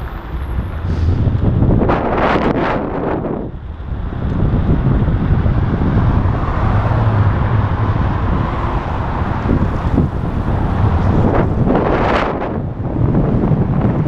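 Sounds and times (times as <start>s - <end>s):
road traffic: 0.0s - 14.0s
wind buffeting microphone: 0.0s - 14.0s.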